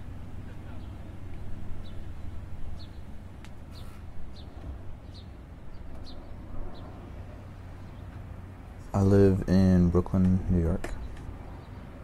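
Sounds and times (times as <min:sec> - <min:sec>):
low background rumble: 0:00.0 - 0:12.0
small bird chirping: 0:00.7 - 0:07.2.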